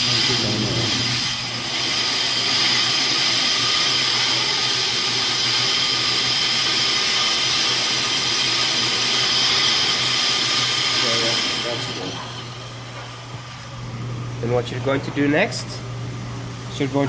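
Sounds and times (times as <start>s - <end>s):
metallic whine and hiss: 0.0s - 13.4s
lathe motor hum: 0.0s - 17.0s.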